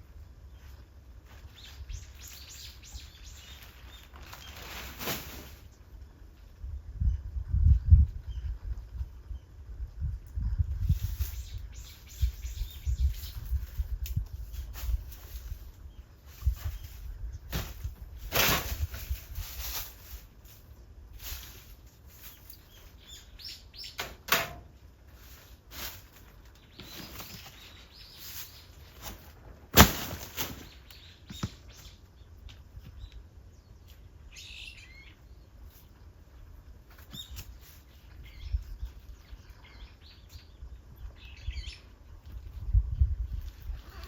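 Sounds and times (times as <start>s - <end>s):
birds chirping: 1.4s - 4.7s, 11.2s - 13.8s, 22.2s - 24.1s, 26.5s - 29.1s, 30.0s - 42.5s.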